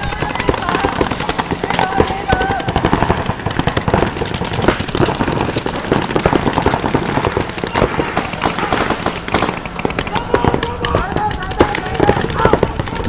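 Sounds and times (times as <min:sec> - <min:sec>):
rapid cracking and popping: 0:00.0 - 0:13.0.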